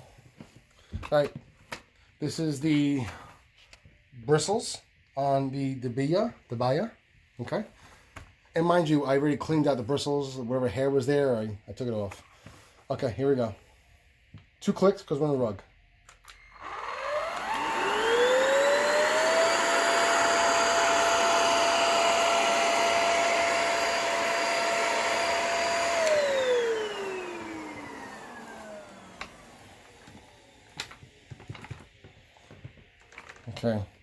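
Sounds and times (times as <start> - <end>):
vacuum cleaner motor whining: 16.3 - 32.8.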